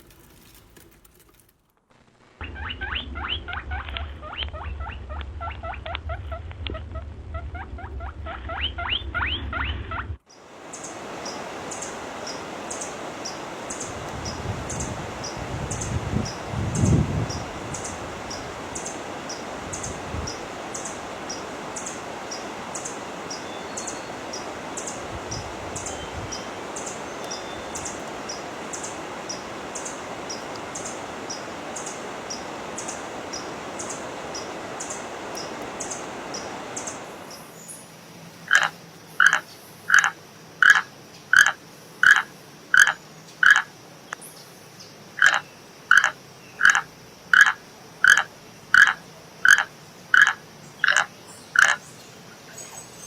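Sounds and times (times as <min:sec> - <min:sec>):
steady rushing noise: 0:02.0 - 0:37.7
frog croaking: 0:10.8 - 0:37.0, 0:38.4 - 0:43.8, 0:45.2 - 0:51.9.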